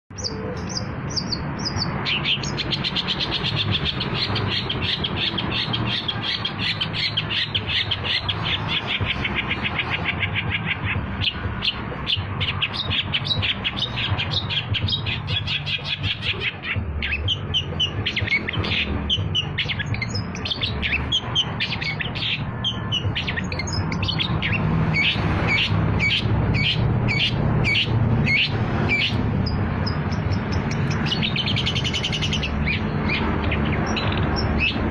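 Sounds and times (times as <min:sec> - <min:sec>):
bird chattering song: 0:00.1 - 0:34.9.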